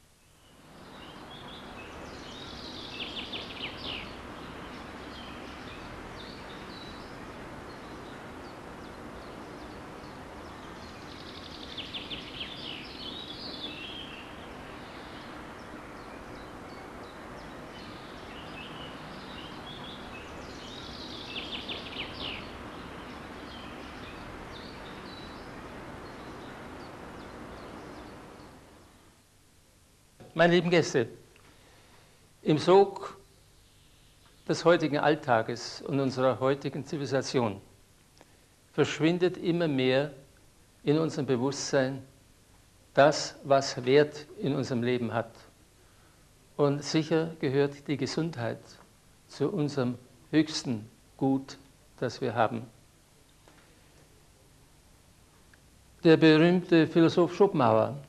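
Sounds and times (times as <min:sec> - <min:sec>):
outdoor background noise: 0:00.0 - 0:58.0
songbird trilling: 0:00.4 - 0:28.6.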